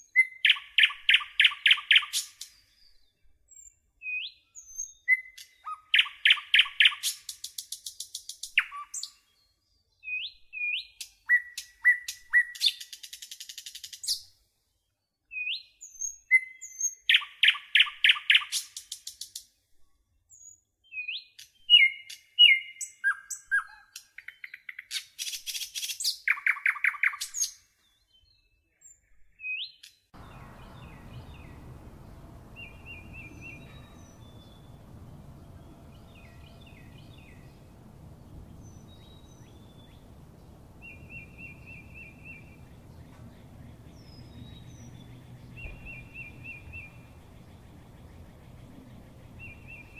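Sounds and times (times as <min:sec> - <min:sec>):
birds chirping and trilling: 0:00.0 - 0:07.3, 0:20.4 - 0:49.9
steady outdoor hiss: 0:30.2 - 0:49.9.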